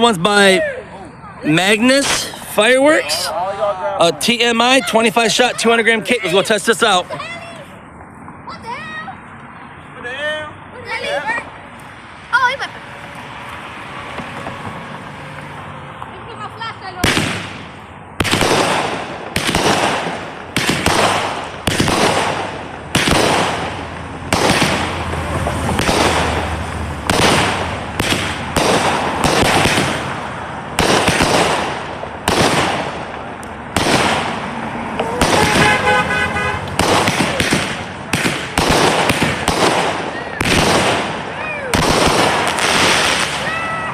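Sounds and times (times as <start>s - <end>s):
firework bangs: 16.9s - 43.9s.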